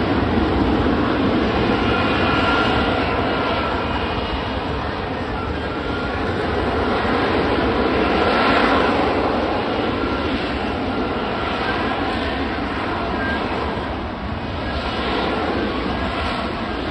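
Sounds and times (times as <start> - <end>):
jet engine running: 0.0 - 16.9.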